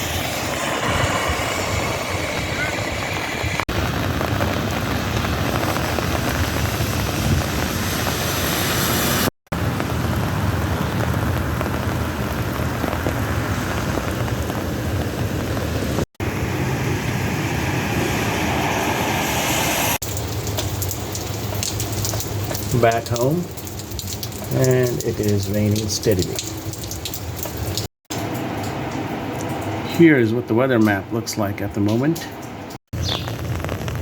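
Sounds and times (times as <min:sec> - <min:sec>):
light steady rain: 0:00.0 - 0:32.4
low rumble: 0:09.6 - 0:20.0.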